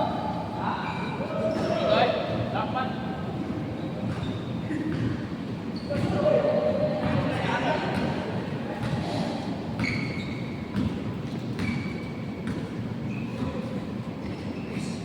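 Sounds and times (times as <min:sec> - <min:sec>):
large hall background noise: 0:00.0 - 0:15.0
sneakers squeaking: 0:00.4 - 0:02.5, 0:03.4 - 0:06.4, 0:07.0 - 0:15.0
basketball bouncing on court: 0:04.0 - 0:05.2, 0:09.8 - 0:13.6.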